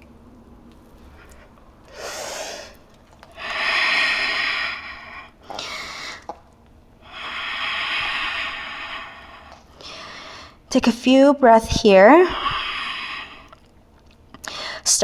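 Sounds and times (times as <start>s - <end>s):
person breathing deeply: 3.4s - 6.3s, 7.0s - 10.6s, 12.3s - 13.5s.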